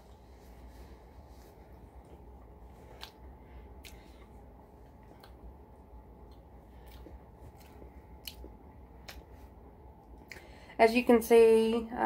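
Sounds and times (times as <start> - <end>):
low steady hum: 0.0 - 12.0
soft chewing clicks: 2.0 - 10.5.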